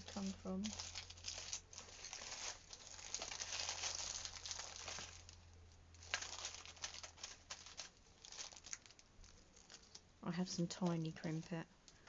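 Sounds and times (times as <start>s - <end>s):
craft supplies rummaged by hand: 0.0s - 5.4s, 6.0s - 9.0s
crinkling and rustling: 0.0s - 12.0s.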